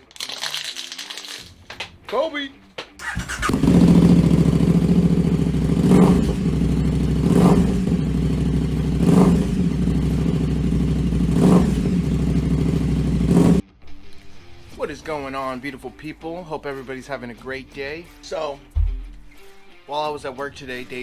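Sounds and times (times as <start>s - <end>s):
motorcycle engine idling and revving: 3.0s - 13.6s.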